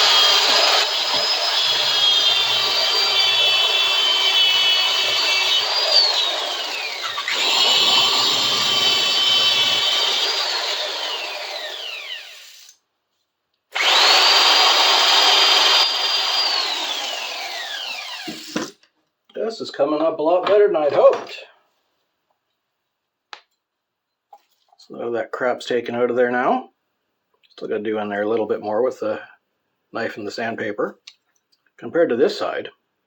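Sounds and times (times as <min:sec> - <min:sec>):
power tool grinding metal: 0:00.0 - 0:12.7, 0:13.8 - 0:18.8.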